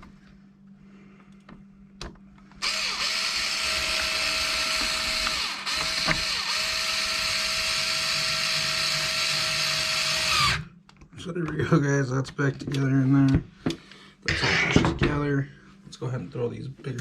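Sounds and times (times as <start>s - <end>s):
cordless screwdriver motor whine: 2.6s - 10.7s.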